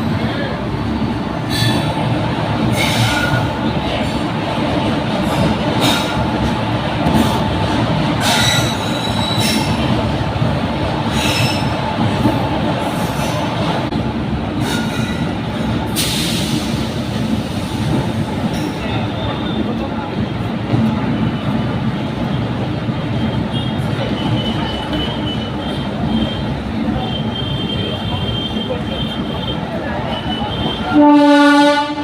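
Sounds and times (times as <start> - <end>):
train coaches rumbling on rails: 0.0 - 32.0
high-pitched wheel squeals: 8.3 - 9.8.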